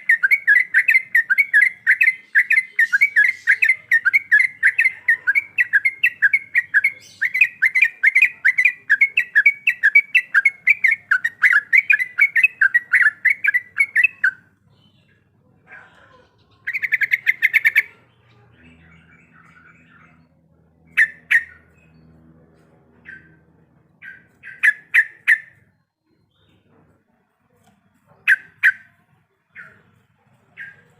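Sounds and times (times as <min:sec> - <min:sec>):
bulbul singing repeated notes: 0:00.0 - 0:15.2
soft bird chirps: 0:00.0 - 0:30.9.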